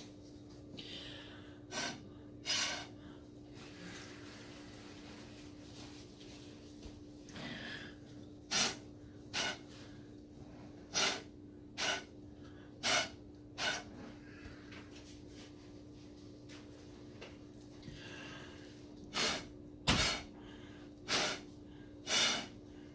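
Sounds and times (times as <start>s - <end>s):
puffs of breath through a straw: 1.7s - 3.0s, 8.5s - 9.7s, 10.9s - 12.1s, 12.8s - 13.9s, 19.1s - 20.3s, 21.1s - 22.6s.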